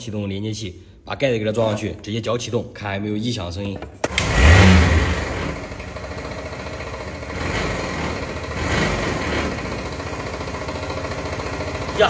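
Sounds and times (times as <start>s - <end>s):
scooter engine starting and idling: 3.6s - 12.0s.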